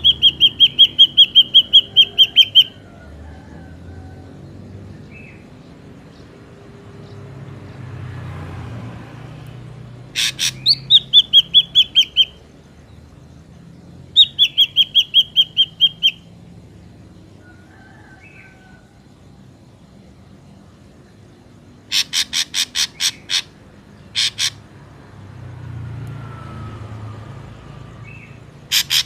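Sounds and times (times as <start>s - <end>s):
bird calling sharp repeated notes: 0.0s - 2.8s, 10.1s - 12.5s, 14.1s - 16.3s, 21.8s - 24.7s, 28.2s - 29.0s.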